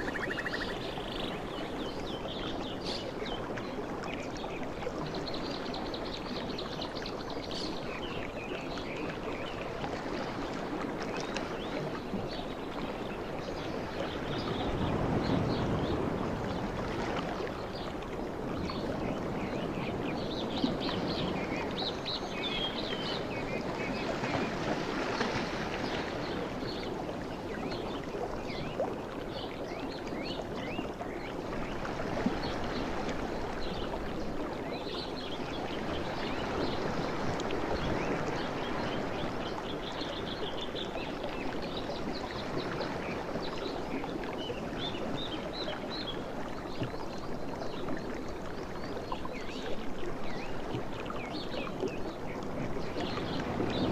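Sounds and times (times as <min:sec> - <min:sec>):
small birds chirping: 0:00.0 - 0:01.8
gentle waves washing: 0:00.0 - 0:04.2, 0:23.1 - 0:30.2, 0:30.8 - 0:53.9.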